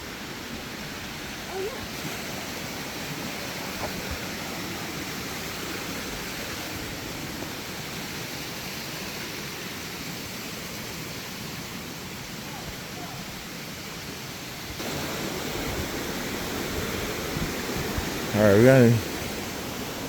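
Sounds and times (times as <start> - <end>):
stream flowing: 0.0 - 20.0.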